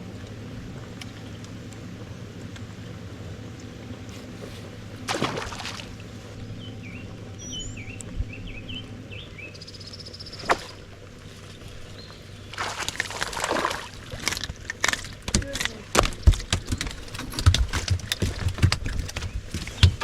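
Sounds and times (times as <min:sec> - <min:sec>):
steady low hum: 0:00.0 - 0:20.0
bird chirping: 0:05.9 - 0:12.7, 0:15.2 - 0:20.0.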